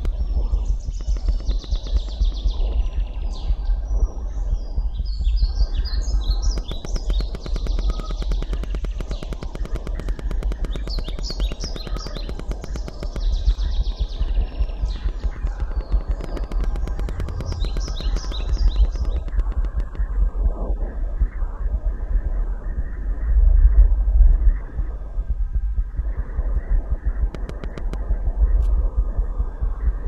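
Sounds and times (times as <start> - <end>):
fast run of clicks: 0.0 - 2.8, 5.8 - 20.2, 26.5 - 28.2
steady low rumble: 0.0 - 30.0
bird chirping: 0.1 - 20.1.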